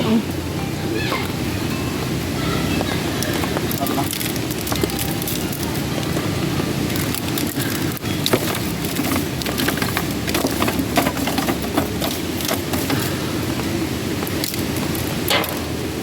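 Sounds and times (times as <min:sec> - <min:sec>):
steady rushing noise: 0:00.0 - 0:16.0
wood fire crackling and popping: 0:03.2 - 0:16.0.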